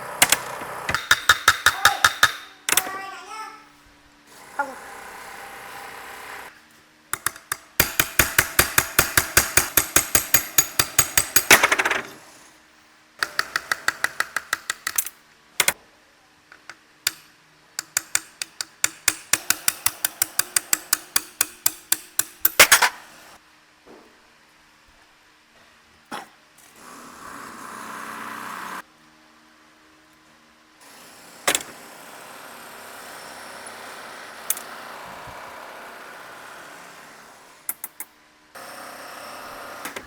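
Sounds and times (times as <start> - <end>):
hammer striking metal: 0.2 - 2.7, 7.2 - 12.0, 17.8 - 23.0.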